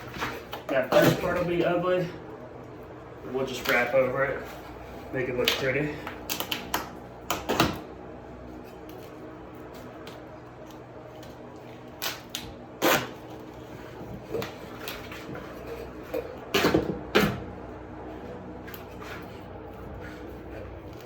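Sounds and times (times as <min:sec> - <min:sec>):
steady low hum: 0:00.0 - 0:21.0
tape ripping off roll: 0:11.9 - 0:15.4.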